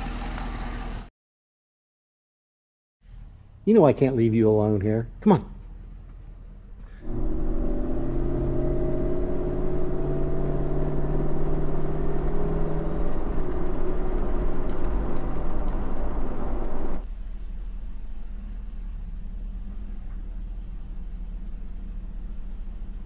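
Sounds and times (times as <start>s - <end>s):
misfiring car engine running: 7.0s - 23.0s.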